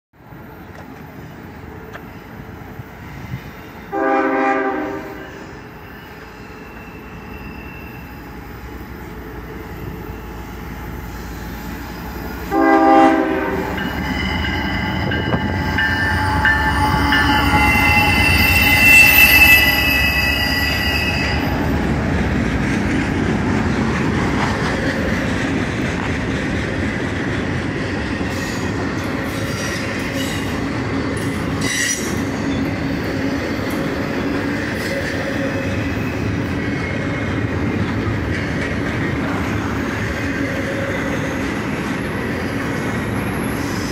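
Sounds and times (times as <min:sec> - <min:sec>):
freight train passing: 0:00.2 - 0:43.9
train horn blast: 0:03.9 - 0:05.6, 0:12.4 - 0:14.0, 0:15.1 - 0:21.4
high-pitched wheel squeal: 0:05.2 - 0:08.4, 0:13.7 - 0:21.7, 0:31.4 - 0:37.2.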